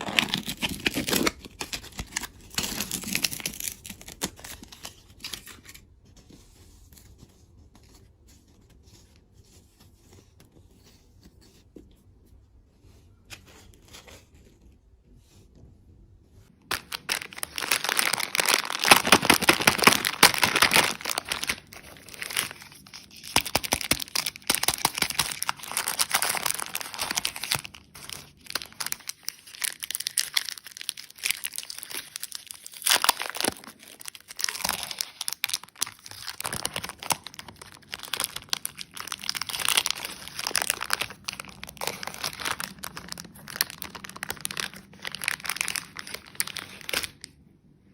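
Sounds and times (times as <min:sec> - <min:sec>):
candy wrapper crinkling and tearing: 0:00.0 - 0:05.8, 0:16.6 - 0:47.4.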